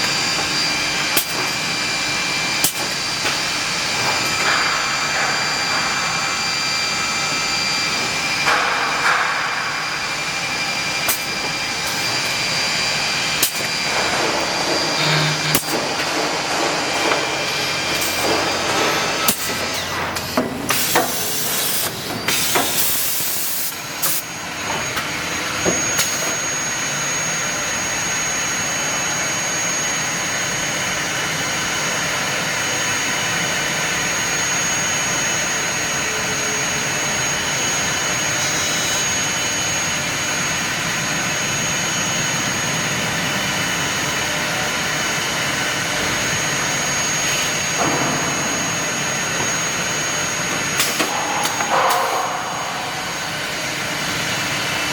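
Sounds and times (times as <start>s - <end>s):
drilling machine running: 0.0s - 54.9s
thin high whine: 3.8s - 19.9s, 46.0s - 54.9s.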